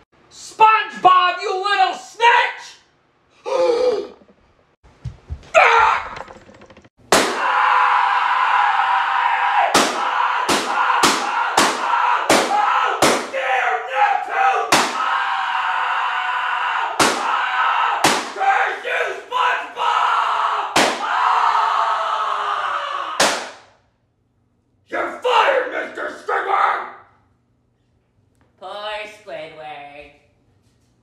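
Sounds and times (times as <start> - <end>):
cartoon shouting and scuffling: 5.5 - 6.2
hard slaps and slams: 7.1 - 7.5, 9.7 - 13.4, 14.7 - 15.1, 17.0 - 17.3, 18.0 - 18.4, 20.8 - 21.1, 23.2 - 23.8.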